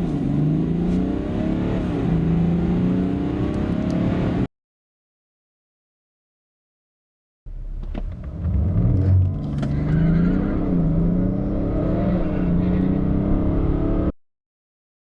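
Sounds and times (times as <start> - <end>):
diesel car engine accelerating: 0.0 - 4.5, 7.5 - 14.1.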